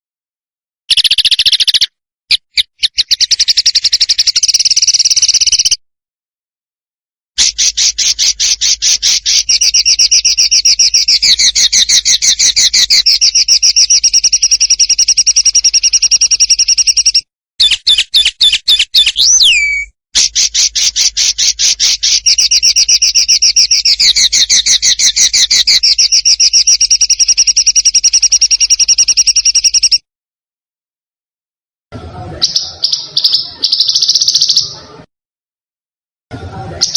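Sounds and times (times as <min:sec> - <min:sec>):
songbird harsh trill: 0:00.9 - 0:01.9, 0:02.5 - 0:05.8, 0:07.4 - 0:30.0, 0:32.4 - 0:34.8
bird whistle sweeping downward: 0:07.4 - 0:20.0.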